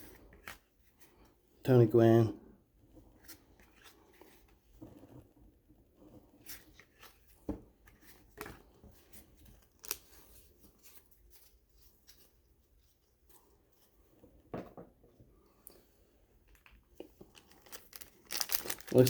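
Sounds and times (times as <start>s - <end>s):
cards being flipped through: 9.6s - 10.2s, 17.4s - 19.0s.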